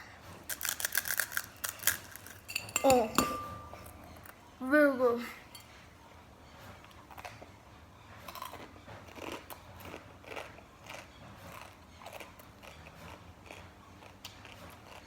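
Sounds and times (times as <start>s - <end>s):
chewing crunchy food: 0.2s - 3.0s, 6.9s - 7.6s, 8.2s - 15.0s.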